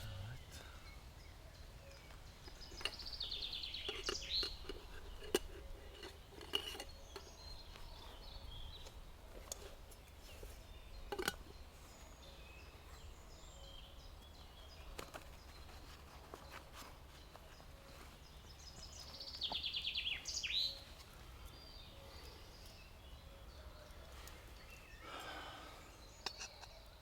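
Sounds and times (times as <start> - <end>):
songbird trilling: 0.0 - 4.7, 18.4 - 23.6.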